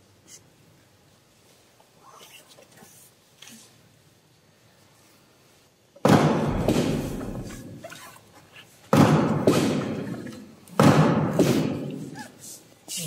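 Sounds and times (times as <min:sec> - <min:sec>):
heavy reverberant thuds: 0:06.0 - 0:07.8, 0:08.9 - 0:12.1.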